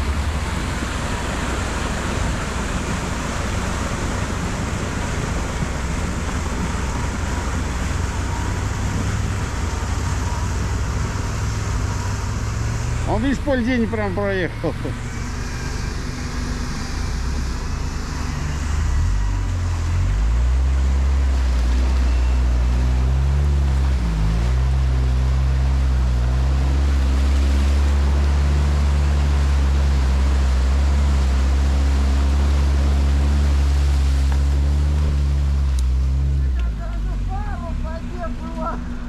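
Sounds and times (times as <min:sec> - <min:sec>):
atv engine running: 0:00.0 - 0:39.0.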